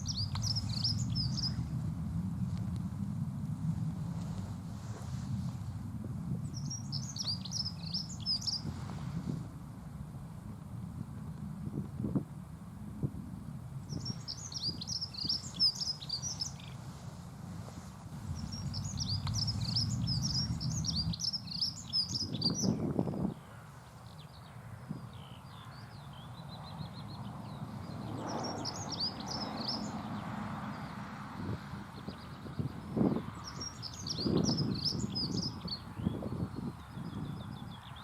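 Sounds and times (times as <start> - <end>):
bird singing high warbling phrases: 0.0 - 1.7, 6.4 - 8.7, 13.9 - 16.8, 18.3 - 38.0
low rumble: 0.0 - 23.1.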